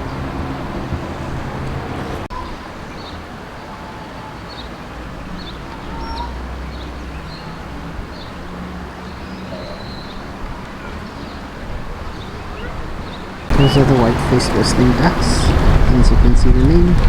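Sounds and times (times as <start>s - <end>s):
ducks giving high whistles: 13.5s - 15.7s
low background rumble: 13.5s - 17.0s.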